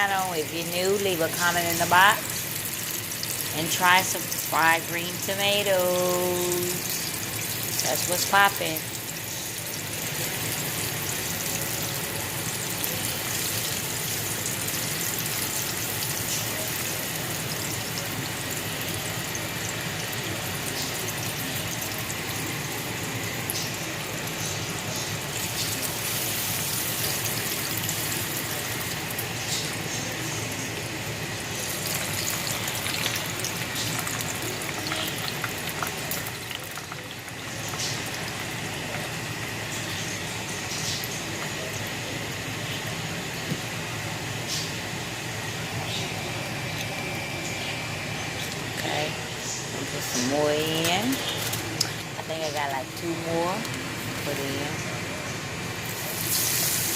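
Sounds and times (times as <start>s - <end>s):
frying in hot oil sizzle: 0.0s - 56.9s
oil crackles and pops: 31.4s - 42.0s, 50.7s - 52.6s.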